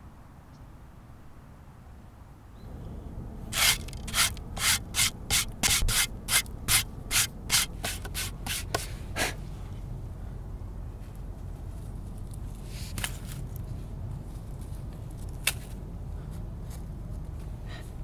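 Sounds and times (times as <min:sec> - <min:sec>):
hand sanding clay pot: 0:03.6 - 0:08.9.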